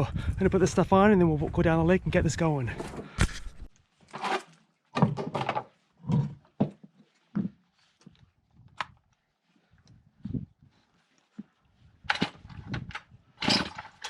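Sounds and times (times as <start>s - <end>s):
thumps and rustles of equipment: 2.8s - 8.2s.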